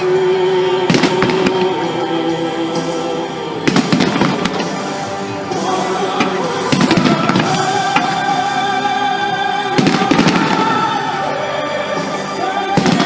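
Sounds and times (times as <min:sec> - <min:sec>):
music: 0:00.0 - 0:13.0
fireworks banging: 0:00.9 - 0:02.0, 0:03.6 - 0:08.4, 0:09.7 - 0:11.2, 0:12.7 - 0:13.0.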